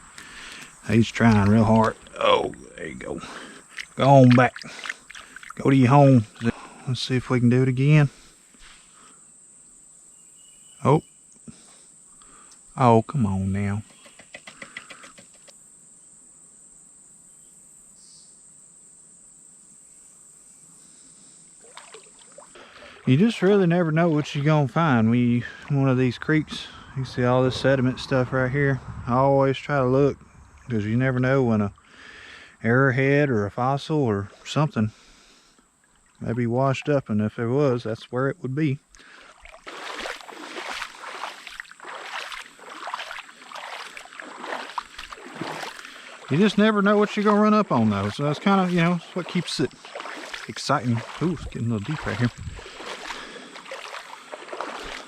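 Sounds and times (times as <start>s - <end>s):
water splashing and sloshing: 0.0s - 6.8s, 21.6s - 25.9s, 35.7s - 37.0s, 38.9s - 55.0s
insects chorus: 0.0s - 55.0s
faint clicks: 13.8s - 15.6s.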